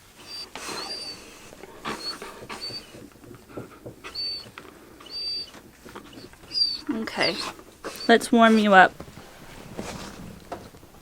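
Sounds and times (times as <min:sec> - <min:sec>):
soft rustling from handling: 0:04.4 - 0:11.0.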